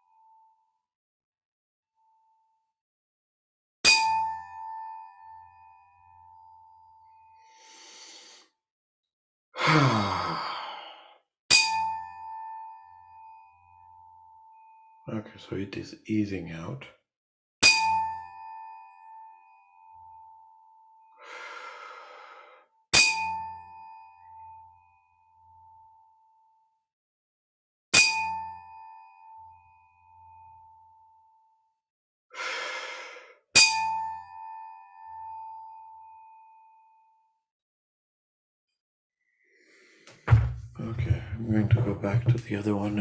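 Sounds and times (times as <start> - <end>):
tuning fork ringing: 3.9 - 7.4, 11.5 - 15.0, 23.0 - 26.1, 28.0 - 31.3
person breathing out: 7.5 - 8.5, 9.6 - 11.2, 21.2 - 22.6, 32.4 - 33.4.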